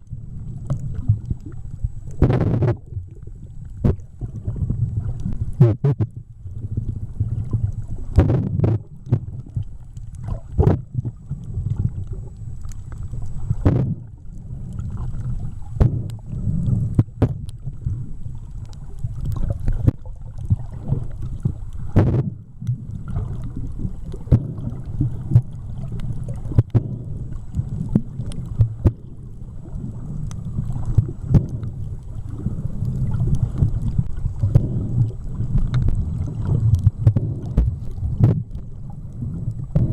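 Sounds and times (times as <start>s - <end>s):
underwater rumble: 0.0s - 39.9s
underwater clicks and pops: 0.6s - 2.9s, 3.7s - 4.1s, 5.1s - 6.2s, 7.6s - 14.1s, 15.7s - 17.6s, 18.6s - 29.2s, 30.2s - 39.9s.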